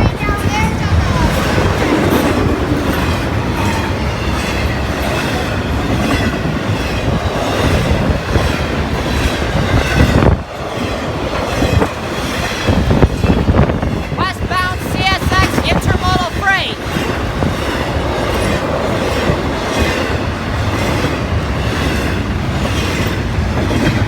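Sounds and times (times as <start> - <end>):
clickety-clack over rail joints: 0.0 - 24.0
train wheels rumbling on rails: 0.0 - 24.0.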